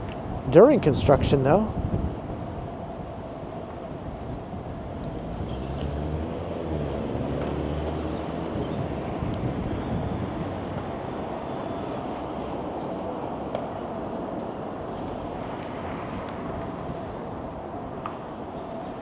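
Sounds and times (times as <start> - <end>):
road traffic: 0.0 - 19.0
large vehicle engine passing: 5.1 - 11.8
faint high squeaks: 5.5 - 6.0, 7.0 - 7.2.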